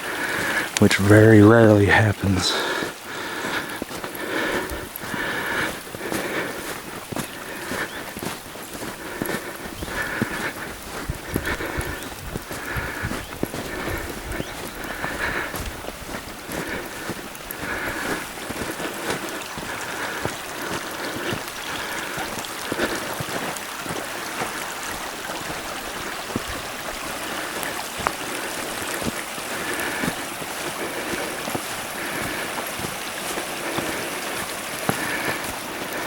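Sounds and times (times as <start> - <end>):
footsteps crunching through snow: 0.0 - 36.0.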